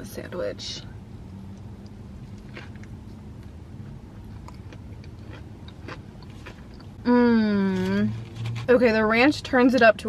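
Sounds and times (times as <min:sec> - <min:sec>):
low steady hum: 0:00.0 - 0:10.0
person chewing crispy food: 0:01.5 - 0:07.0.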